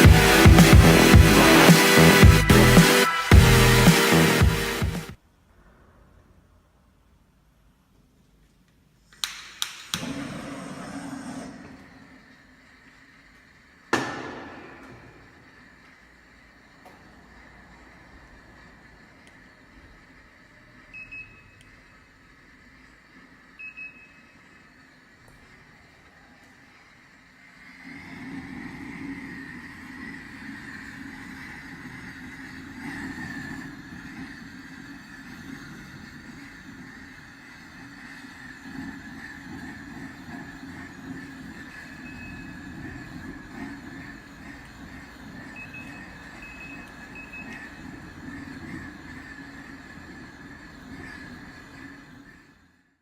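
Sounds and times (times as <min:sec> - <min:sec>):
gas torch burners rushing: 0:00.0 - 0:05.2, 0:09.1 - 0:53.0
low hum: 0:00.0 - 0:06.7.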